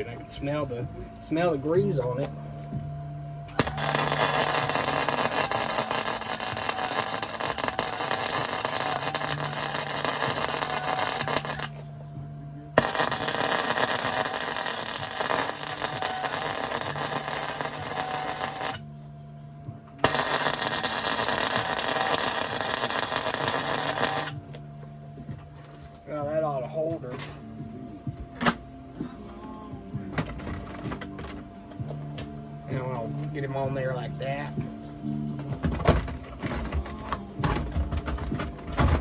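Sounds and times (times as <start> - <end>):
welding arc crackling: 3.5 - 11.8, 12.8 - 18.9, 20.0 - 24.4
welder low hum: 3.5 - 19.0, 20.0 - 24.6.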